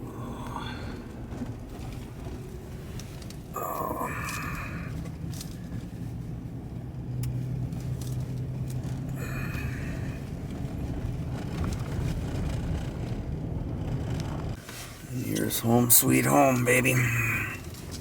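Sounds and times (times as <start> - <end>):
car engine hum and road rumble: 0.0 - 18.0.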